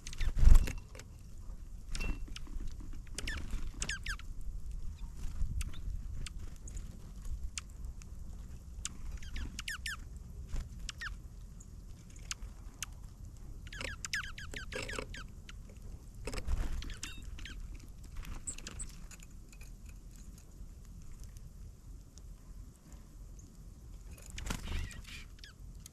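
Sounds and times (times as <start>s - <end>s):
steady low rumble: 0.0s - 14.5s
birds chirping: 1.9s - 4.3s, 8.8s - 10.0s, 10.8s - 13.0s, 13.6s - 19.0s, 24.2s - 25.6s.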